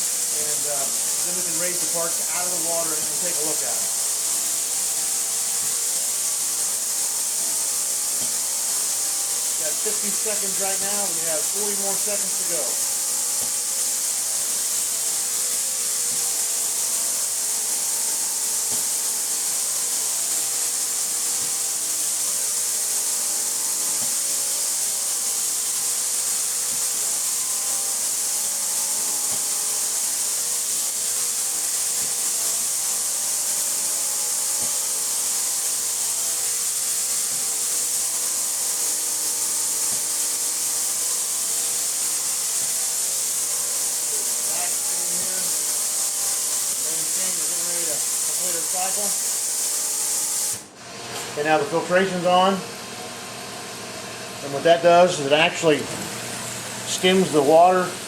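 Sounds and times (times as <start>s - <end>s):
steady tonal hum: 0.0s - 30.1s
parts washer high hiss: 0.0s - 58.0s.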